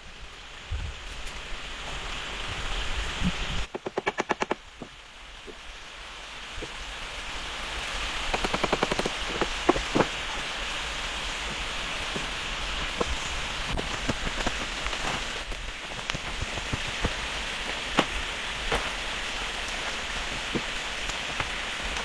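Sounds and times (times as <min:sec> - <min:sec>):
steady rain: 0:00.0 - 0:22.0
rapid knocks: 0:03.7 - 0:04.9, 0:08.3 - 0:10.2.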